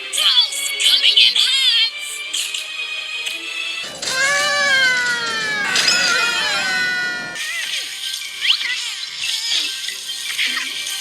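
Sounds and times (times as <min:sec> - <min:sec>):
thin high tone: 0:03.8 - 0:07.4
voice-like wail falling in pitch: 0:03.8 - 0:07.4.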